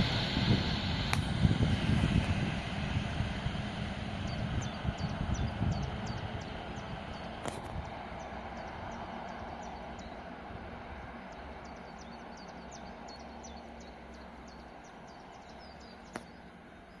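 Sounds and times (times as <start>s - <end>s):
passenger train rumble: 0.0s - 17.0s
small birds chirping: 4.2s - 17.0s.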